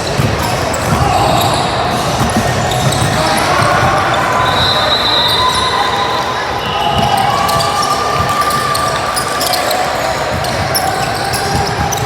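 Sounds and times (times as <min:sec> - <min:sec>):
ball bouncing on gym floor: 0:00.0 - 0:04.8
chatter of people: 0:00.0 - 0:12.0.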